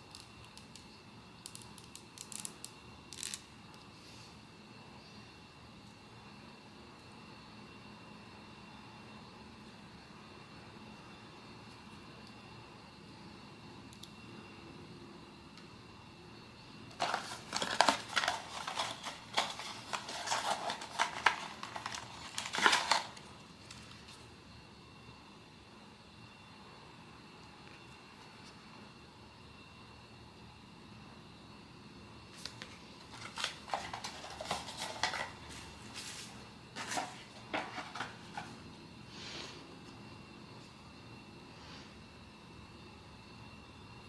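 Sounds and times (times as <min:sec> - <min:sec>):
packaging crinkling and rustling: 0:16.9 - 0:24.2, 0:32.3 - 0:38.6.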